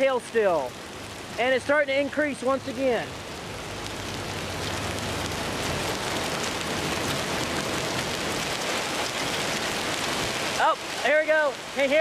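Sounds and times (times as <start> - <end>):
hailstones ticking: 0.0 - 12.0
rain falling: 0.0 - 12.0.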